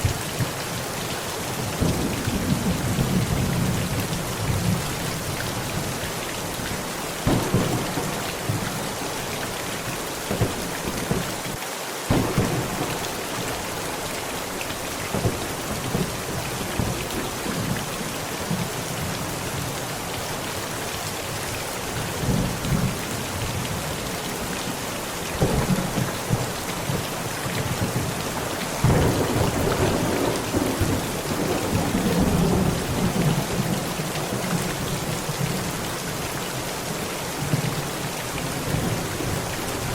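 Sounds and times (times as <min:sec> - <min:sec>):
heavy rain pounding: 0:00.0 - 0:39.9
sharp thunder cracks: 0:07.2 - 0:08.8, 0:12.1 - 0:13.0
rolling thunder rumble: 0:07.2 - 0:09.0.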